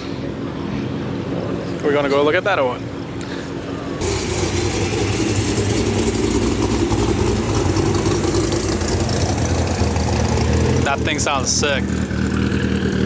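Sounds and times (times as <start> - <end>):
car engine idling: 3.9 - 13.0.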